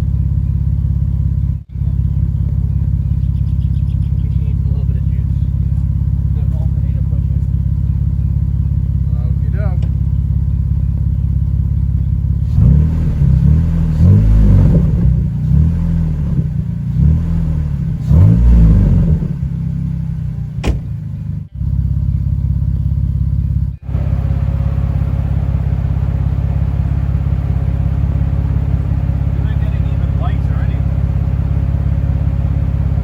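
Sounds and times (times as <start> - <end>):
car engine revving and idling: 0.0 - 33.0.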